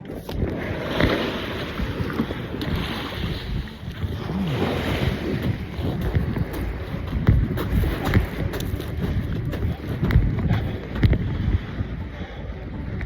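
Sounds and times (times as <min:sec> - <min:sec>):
sea water washing: 0:00.0 - 0:13.0
wind buffeting microphone: 0:00.0 - 0:13.0.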